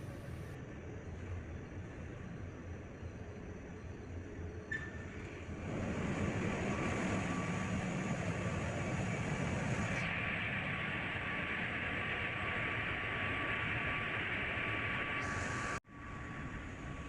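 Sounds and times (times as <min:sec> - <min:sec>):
ship engine room machinery din: 0:00.0 - 0:00.6, 0:04.6 - 0:17.0
thin steady whines: 0:00.0 - 0:17.0.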